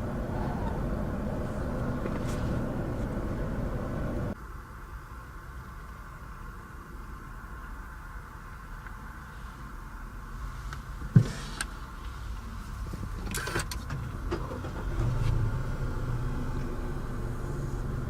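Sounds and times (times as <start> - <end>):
low hum: 0.0 - 4.4, 14.5 - 18.0
rustle: 8.8 - 16.8
thump inside car: 11.0 - 11.6.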